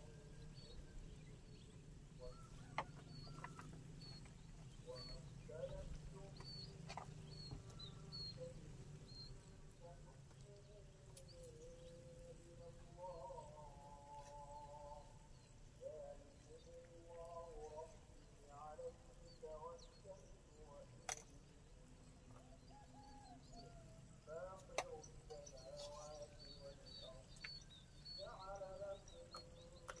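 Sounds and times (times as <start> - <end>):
bird chirping: 0.0 - 30.0
faint voices: 1.6 - 30.0
sharp clicks: 24.6 - 25.4.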